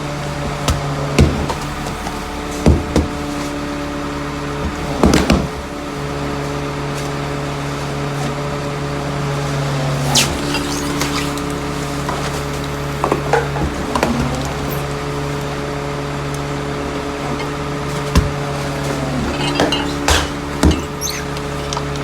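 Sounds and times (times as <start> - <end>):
garbage truck engine running: 0.0 - 22.0
metallic clunks and bangs: 17.2 - 22.0.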